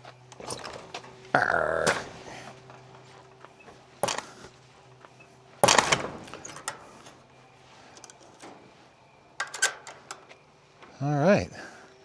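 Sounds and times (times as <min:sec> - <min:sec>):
sudden knocks: 0:04.0 - 0:04.5, 0:05.6 - 0:06.5.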